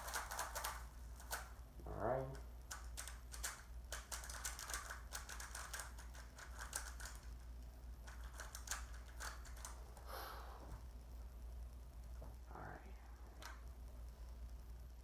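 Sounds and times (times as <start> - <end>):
puzzle cube plastic clicks: 2.7 - 7.3, 8.0 - 9.8.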